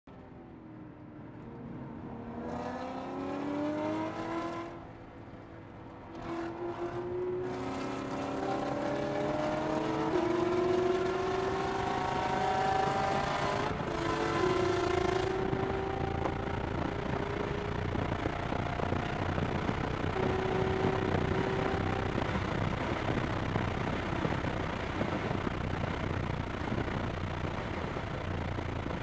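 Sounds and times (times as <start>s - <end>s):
car engine accelerating: 0.4s - 29.0s
gear upshifts: 5.9s - 29.0s.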